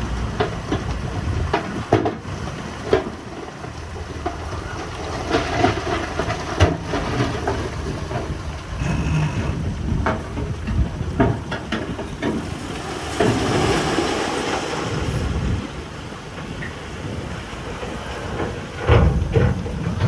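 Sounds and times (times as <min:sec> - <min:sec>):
diesel engine rumbling: 0:00.0 - 0:20.0
metallic clanks and knocks: 0:05.3 - 0:14.6, 0:17.7 - 0:20.0.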